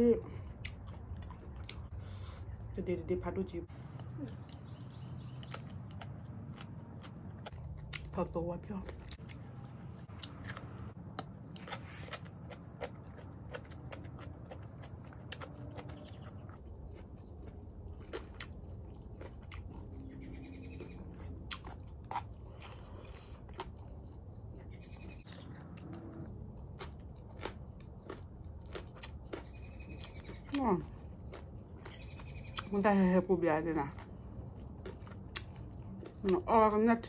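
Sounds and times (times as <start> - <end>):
chewing and crunching food: 0.0 - 37.0
bird chirping: 4.2 - 6.1, 19.8 - 21.4, 24.5 - 26.1, 29.3 - 30.6, 31.8 - 32.8.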